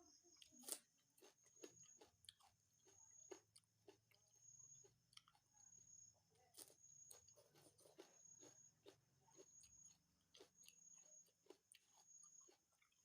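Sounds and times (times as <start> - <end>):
person chewing food: 0.4 - 13.0.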